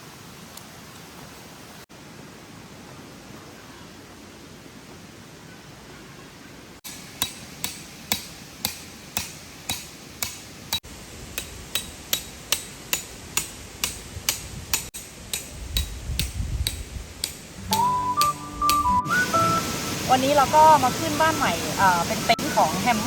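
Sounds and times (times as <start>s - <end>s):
background hiss: 0.0s - 23.0s
hammer blows with metallic ring: 11.4s - 19.0s.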